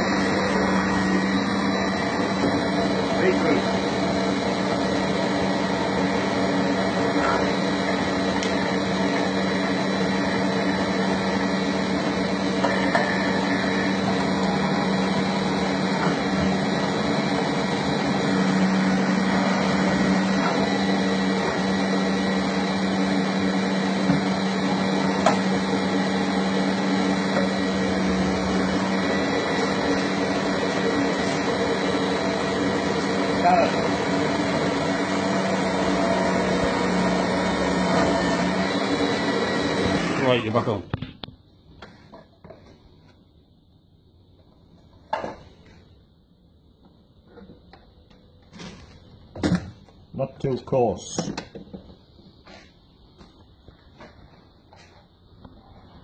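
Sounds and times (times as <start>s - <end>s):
electric motor hum: 0.0s - 40.8s.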